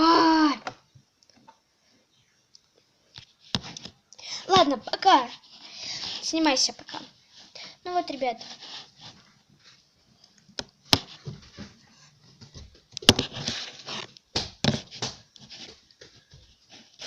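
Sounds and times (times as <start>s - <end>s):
rustling: 5.3s - 17.0s.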